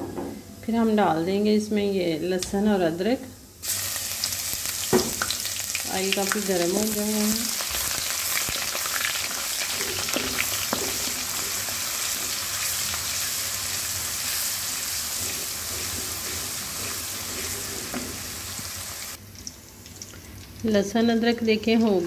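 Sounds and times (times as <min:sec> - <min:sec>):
paste sizzling in hot oil: 0:03.6 - 0:19.2.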